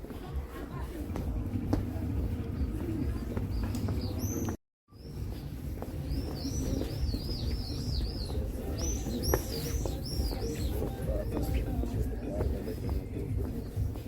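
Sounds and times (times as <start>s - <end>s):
songbird chirping: 3.0s - 14.0s.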